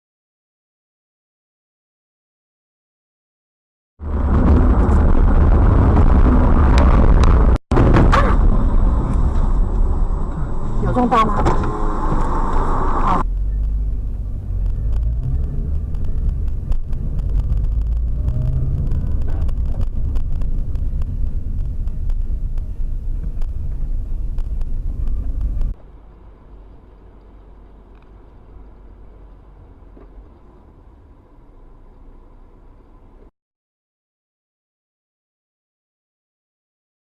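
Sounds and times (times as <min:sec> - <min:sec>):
car road and engine rumble: 0:04.0 - 0:33.3.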